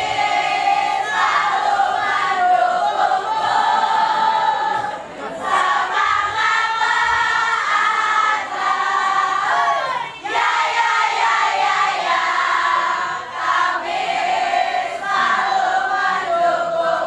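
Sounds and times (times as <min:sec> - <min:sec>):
young voices singing in chorus: 0:00.0 - 0:17.0.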